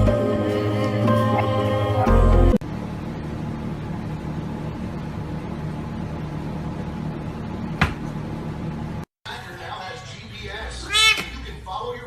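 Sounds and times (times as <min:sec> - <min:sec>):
music: 0:00.0 - 0:02.6.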